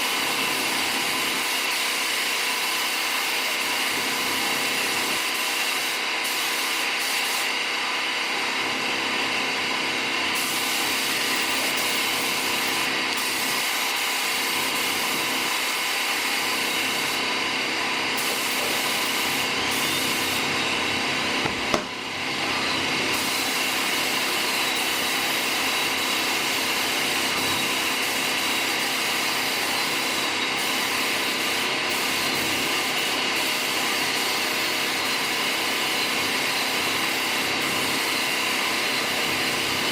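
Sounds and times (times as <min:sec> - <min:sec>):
mechanical whirring with hiss: 0:09.5 - 0:39.9.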